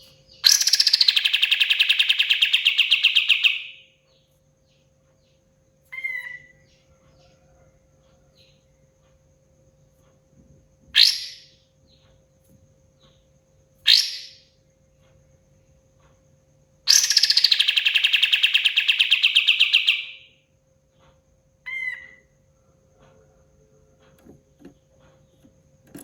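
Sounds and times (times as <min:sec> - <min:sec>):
bulbul calling: 0:00.0 - 0:03.8, 0:16.9 - 0:20.3
faint steady hum: 0:00.0 - 0:26.0.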